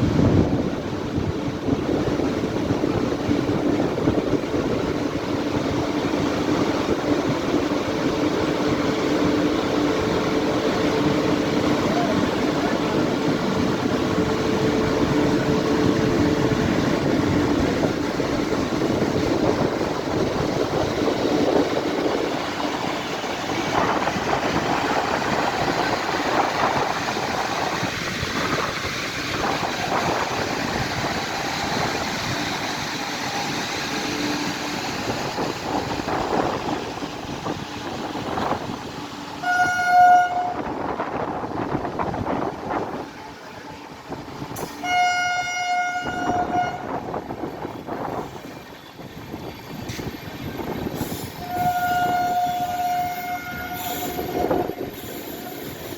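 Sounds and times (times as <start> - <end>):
train rumble and rattle: 0.0 - 55.9
train horn: 39.4 - 40.9, 44.7 - 47.2, 51.4 - 55.6.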